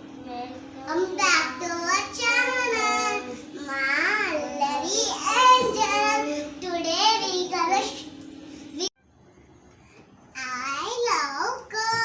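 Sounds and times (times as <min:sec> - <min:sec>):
steady low hum: 0:00.0 - 0:12.0
child singing: 0:00.4 - 0:07.8, 0:11.3 - 0:12.0.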